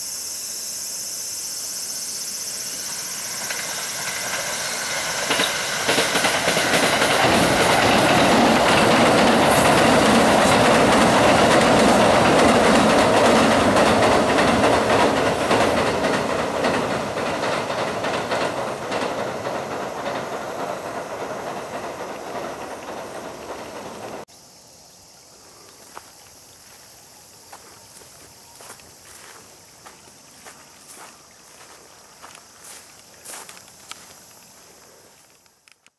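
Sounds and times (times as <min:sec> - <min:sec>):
train wheels clattering on rails: 0:02.5 - 0:24.3
heavy train rumble: 0:02.7 - 0:24.3.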